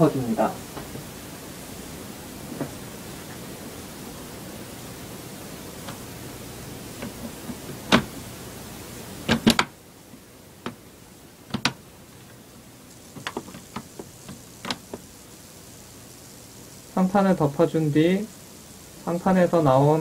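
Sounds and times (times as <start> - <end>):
plastic laptop case clicks and knocks: 9.3 - 9.7, 11.5 - 11.8.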